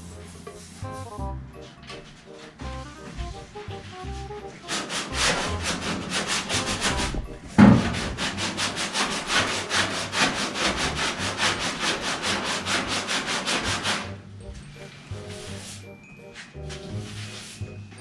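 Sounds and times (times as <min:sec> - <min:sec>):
abrasive pad scrubbing sheet metal: 0:01.9 - 0:15.9
loud thump: 0:07.0 - 0:08.2.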